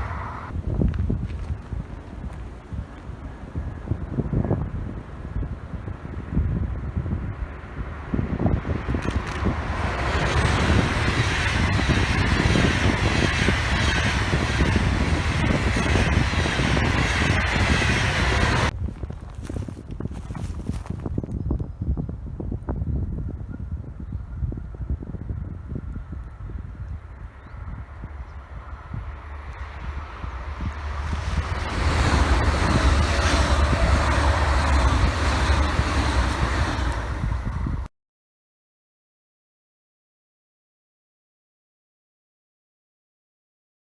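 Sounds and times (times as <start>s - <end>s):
train wheels on rail: 0.0s - 6.3s, 7.2s - 21.4s, 25.7s - 37.9s.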